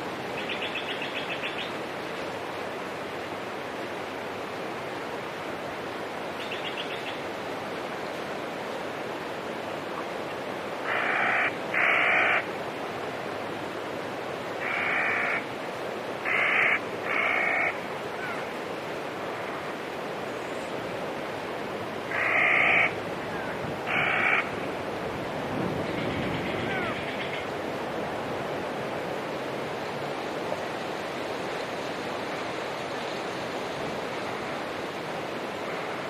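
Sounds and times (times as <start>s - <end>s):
bird harsh calls: 10.9s - 12.4s, 16.2s - 18.5s, 22.1s - 23.0s, 23.9s - 24.5s.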